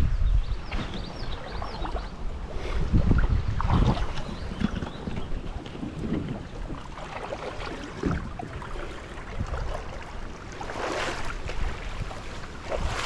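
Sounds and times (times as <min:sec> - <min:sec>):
wind rumbling on microphone: 0:00.0 - 0:13.0
feet wading through water: 0:03.6 - 0:13.0
water splashing: 0:03.6 - 0:13.0.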